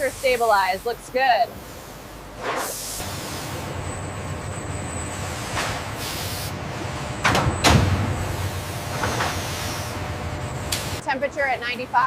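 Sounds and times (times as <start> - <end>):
industrial machinery humming: 0.0 - 12.0
air hissing bursts: 1.6 - 3.6, 6.0 - 6.6, 8.4 - 10.0.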